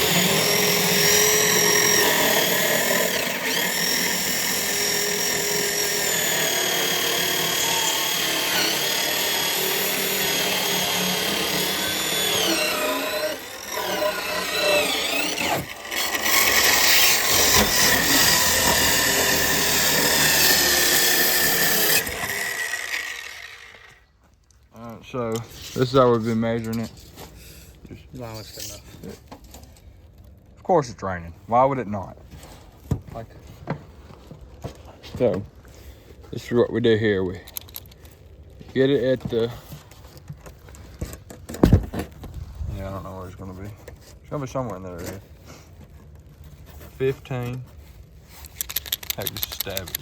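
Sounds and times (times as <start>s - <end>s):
electric saw cutting: 0.0s - 24.0s.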